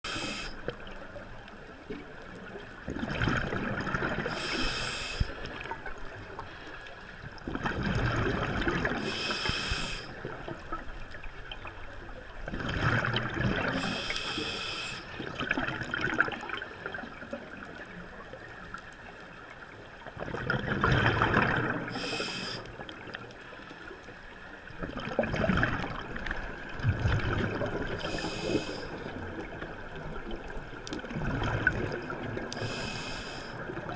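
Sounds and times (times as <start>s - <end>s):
regulator hiss: 0.1s - 0.6s, 4.3s - 5.4s, 9.0s - 10.1s, 13.8s - 15.2s, 21.9s - 22.7s, 28.0s - 29.0s, 32.6s - 33.6s
exhaled bubbles gurgling underwater: 0.1s - 33.9s.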